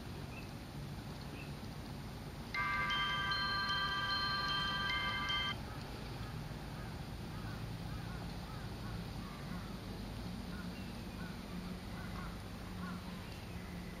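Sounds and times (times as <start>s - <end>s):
low steady hum: 0.0s - 14.0s
faint bird calls: 5.6s - 9.8s, 10.4s - 14.0s.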